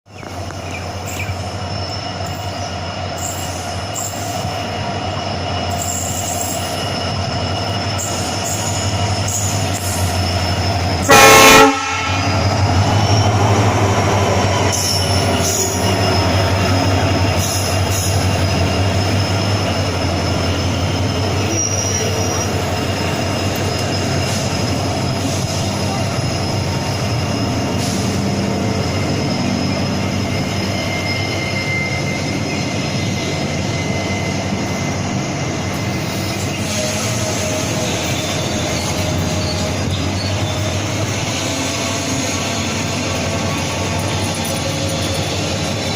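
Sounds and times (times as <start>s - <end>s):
train rolling rumble: 0.1s - 45.9s
high squealing tones: 0.9s - 11.1s, 12.0s - 45.9s
locomotive horn blast: 11.0s - 12.8s.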